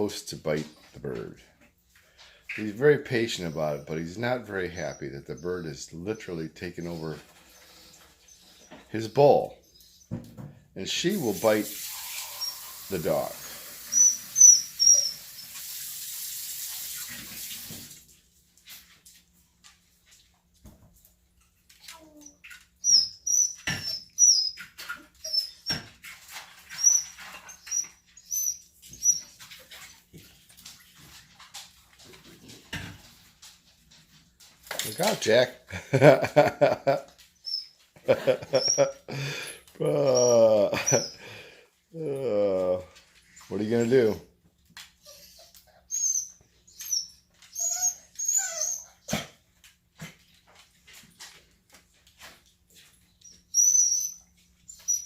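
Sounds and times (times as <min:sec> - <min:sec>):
dog whimpering: 0:13.9 - 0:15.3, 0:21.8 - 0:25.8, 0:37.4 - 0:41.3, 0:45.0 - 0:49.4.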